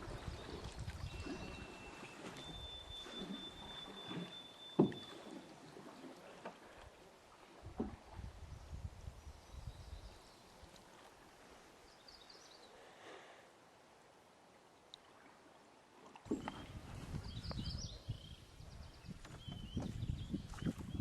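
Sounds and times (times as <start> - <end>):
faint hiss of water: 10.2 - 13.8.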